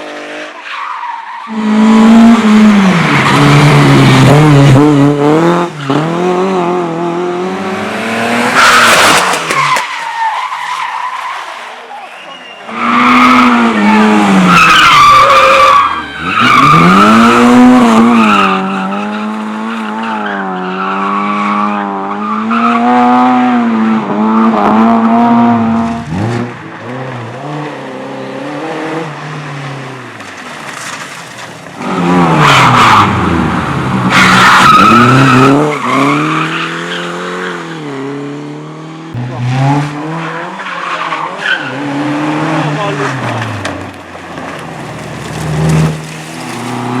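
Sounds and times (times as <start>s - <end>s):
race car engines revving: 0.0s - 47.0s
tyres squealing and skidding: 0.5s - 4.8s, 7.6s - 23.1s, 24.4s - 37.9s, 39.4s - 47.0s.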